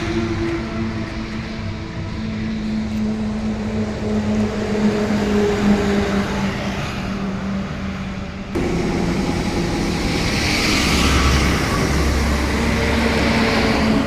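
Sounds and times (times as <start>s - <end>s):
diesel engine running: 7.2s - 14.0s.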